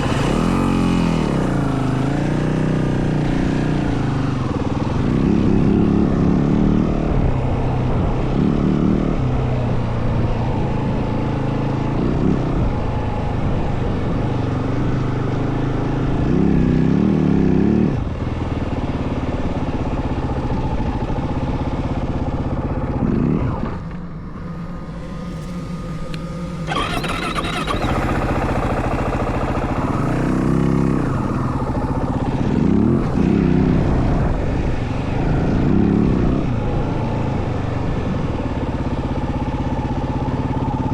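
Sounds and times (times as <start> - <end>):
dirt bike engine revving: 0.0 - 4.0, 24.8 - 33.9.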